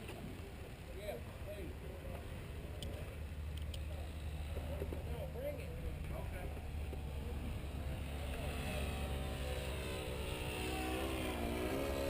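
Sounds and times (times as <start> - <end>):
model plane motors buzzing: 2.4 - 12.0.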